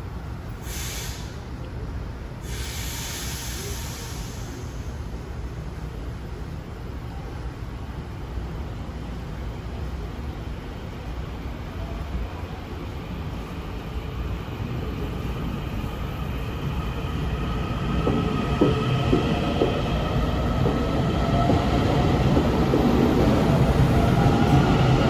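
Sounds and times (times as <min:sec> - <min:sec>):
train rumble: 0:00.0 - 0:25.0
wheels clicking over rail joints: 0:17.8 - 0:25.0.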